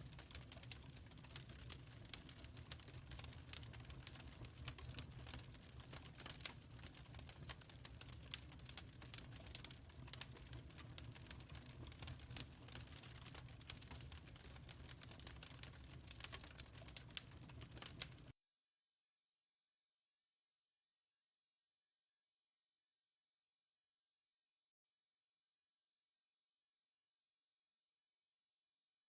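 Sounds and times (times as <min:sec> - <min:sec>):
wood fire crackling: 0:00.0 - 0:18.3.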